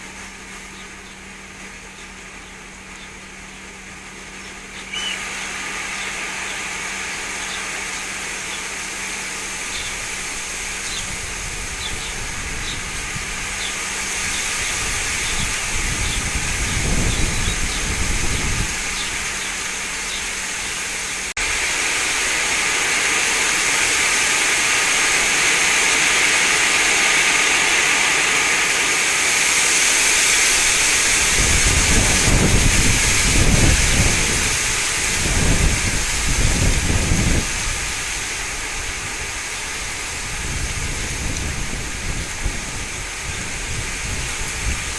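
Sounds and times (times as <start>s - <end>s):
wind rushing through leaves: 0.0s - 44.9s
wind buffeting microphone: 9.6s - 19.5s, 30.4s - 44.9s.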